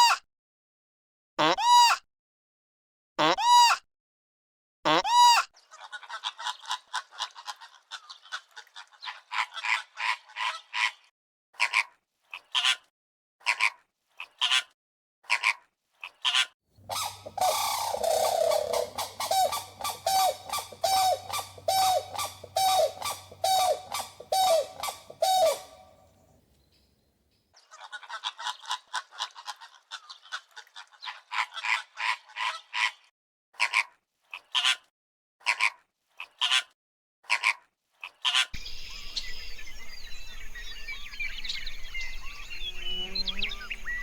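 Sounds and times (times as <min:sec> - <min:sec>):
repeated bird calls: 0:16.8 - 0:26.9, 0:38.6 - 0:44.0
outdoor background noise: 0:16.8 - 0:27.0, 0:38.6 - 0:44.0
faint birdsong: 0:16.8 - 0:27.5, 0:38.6 - 0:44.0.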